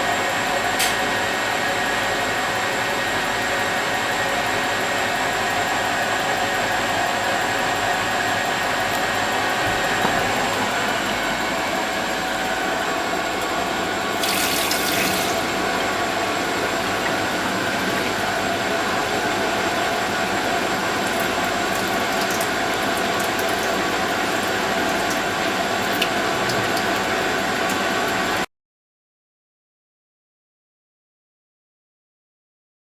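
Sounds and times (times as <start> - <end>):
washing machine humming: 0.0 - 28.5.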